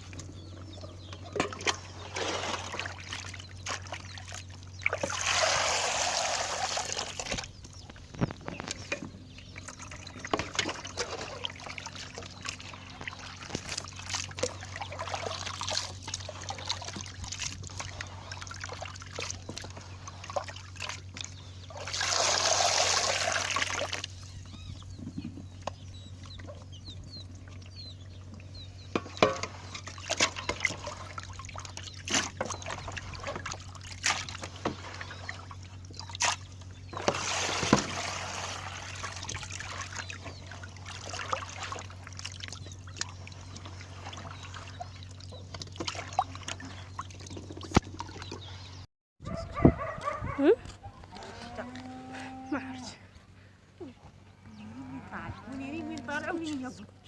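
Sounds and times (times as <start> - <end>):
water pouring and splashing: 1.4 - 24.2, 29.0 - 48.5.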